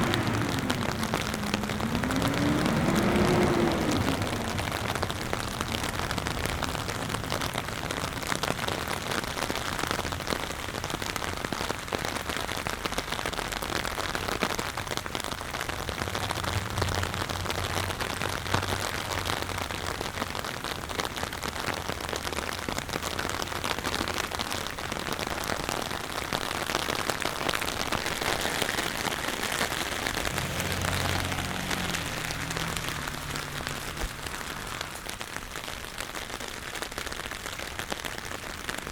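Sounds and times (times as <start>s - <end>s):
low rumble: 0.0s - 8.7s
rain on hard surfaces: 0.0s - 38.9s.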